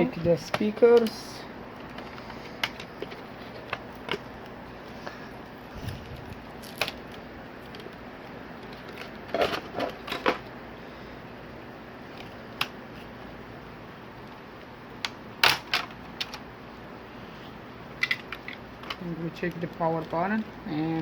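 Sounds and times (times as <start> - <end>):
clicks and knocks of parts handled: 18.0 - 19.0.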